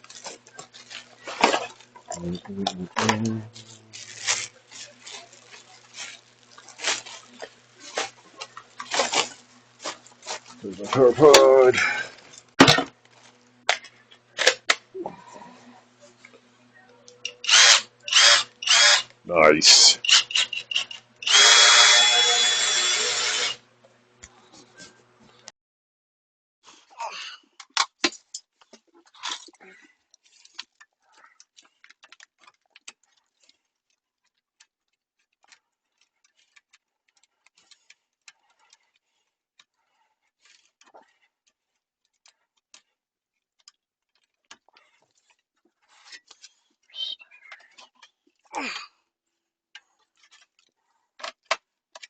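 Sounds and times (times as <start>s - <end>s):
faint hum: 0.1s - 12.4s
power tool burst: 17.4s - 19.0s, 19.7s - 23.6s.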